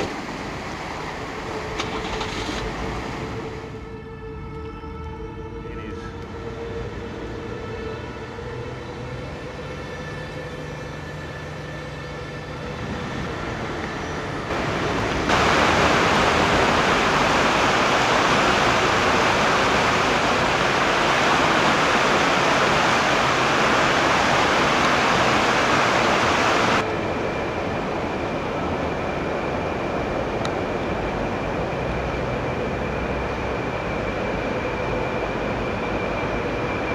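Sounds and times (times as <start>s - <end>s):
floodwater rushing: 0.0s - 3.7s, 14.5s - 26.8s.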